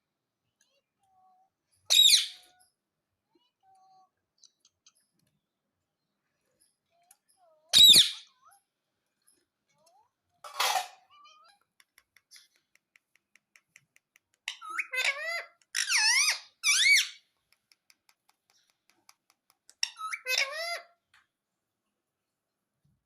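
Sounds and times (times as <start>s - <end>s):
parakeet squawking: 1.9s - 2.5s, 7.7s - 8.3s, 14.5s - 17.2s, 19.8s - 20.9s
parakeet squeaky calls: 1.9s - 2.6s, 7.7s - 8.3s, 14.5s - 17.2s, 19.8s - 20.9s.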